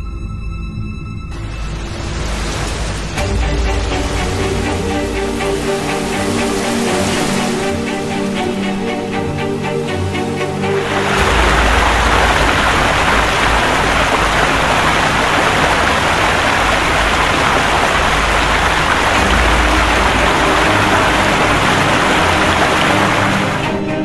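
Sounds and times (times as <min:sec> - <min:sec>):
low rumbling surges: 0:01.4 - 0:23.8
heavy water rushing: 0:01.4 - 0:24.0.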